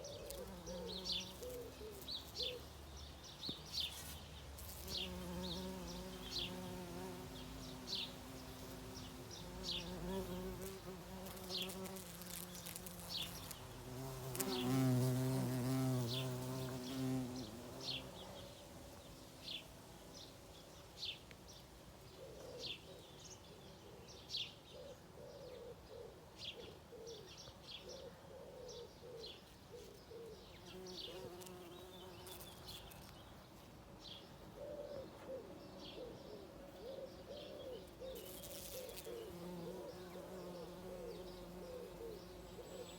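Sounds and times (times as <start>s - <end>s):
insect buzzing: 0.0s - 2.7s, 3.8s - 20.3s, 30.6s - 33.2s, 37.8s - 42.9s.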